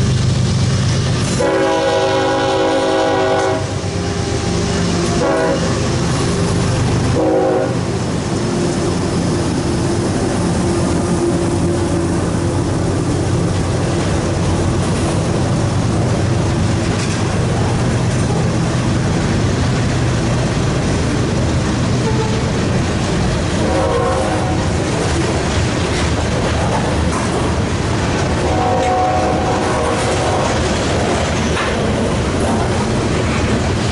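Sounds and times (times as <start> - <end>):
diesel locomotives droning: 0.0 - 33.9
train wheel noise: 0.0 - 33.9
locomotive horn: 1.3 - 5.9, 7.1 - 8.0, 22.0 - 22.5, 23.6 - 24.7, 28.4 - 30.3.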